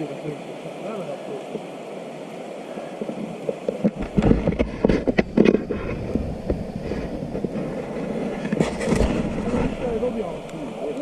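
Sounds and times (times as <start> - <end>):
wind rumble on microphone: 3.1 - 10.8
bike rattling on rough trail: 3.9 - 10.3.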